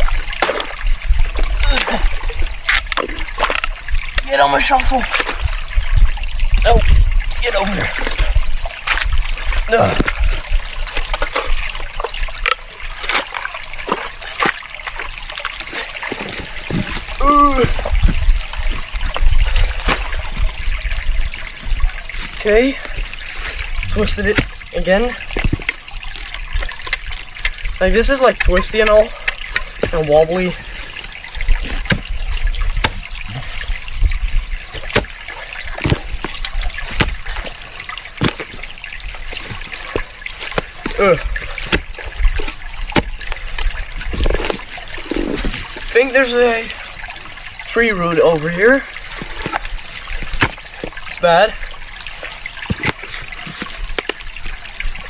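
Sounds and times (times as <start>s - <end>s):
shovel scraping soil: 0.0s - 3.7s, 15.5s - 26.0s, 29.6s - 32.1s, 32.8s - 47.6s, 49.0s - 51.0s, 52.2s - 54.2s
short water splashes: 0.0s - 55.0s
stream trickling: 0.0s - 55.0s.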